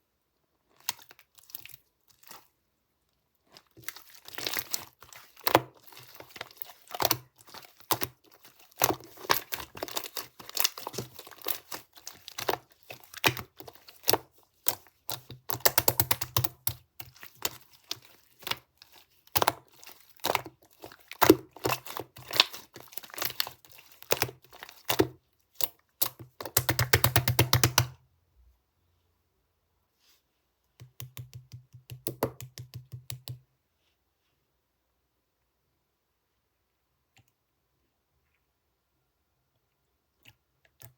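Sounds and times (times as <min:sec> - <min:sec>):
slime clicking and crackling: 0:03.5 - 0:27.9.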